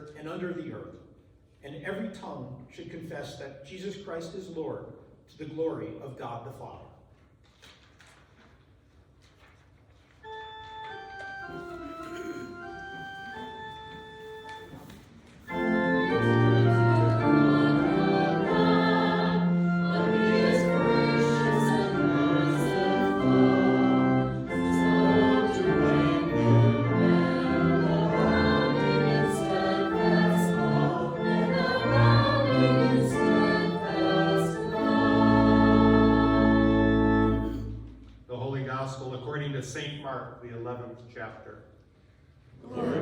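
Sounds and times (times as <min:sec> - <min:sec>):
church organ playing: 0:10.2 - 0:37.9
voices singing: 0:15.5 - 0:37.5, 0:42.6 - 0:43.0.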